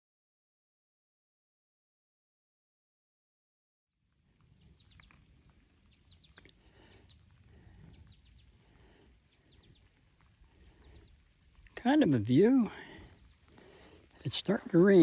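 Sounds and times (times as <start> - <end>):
faint bird chirping: 4.4 - 15.0.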